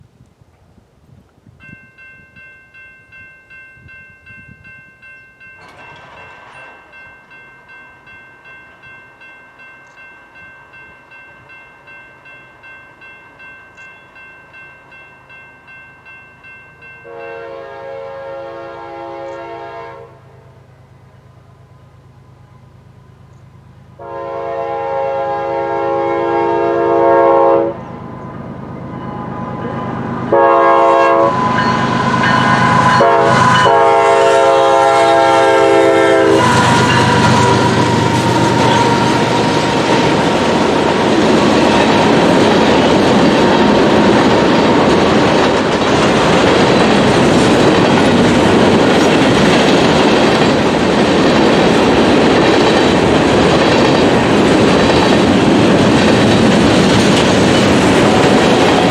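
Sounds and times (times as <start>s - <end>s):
locomotive engines: 4.9s - 15.0s, 27.7s - 58.9s
locomotive horn blasts: 17.0s - 20.5s, 24.0s - 41.1s.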